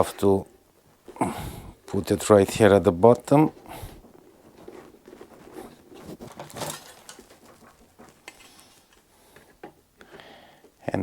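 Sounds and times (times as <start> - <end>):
rubber gasket rubbing and rustling: 3.6 - 9.8.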